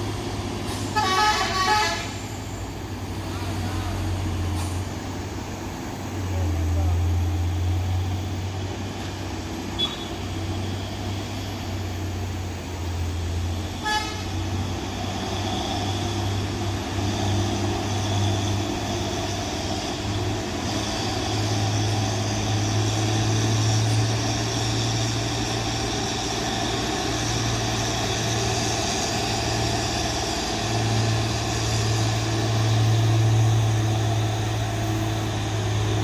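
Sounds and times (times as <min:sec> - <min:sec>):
heavy truck engine droning: 0:00.0 - 0:36.0
vehicle horn toot: 0:00.9 - 0:02.2, 0:09.8 - 0:10.4, 0:13.8 - 0:14.4.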